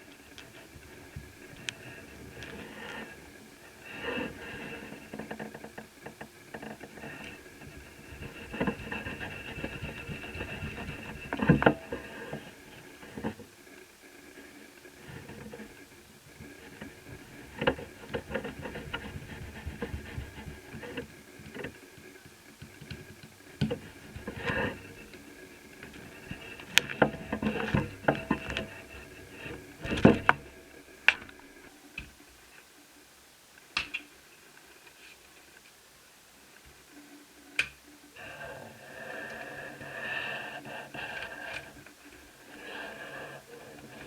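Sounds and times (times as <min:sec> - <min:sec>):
rustling handling noise: 0:00.0 - 0:31.8.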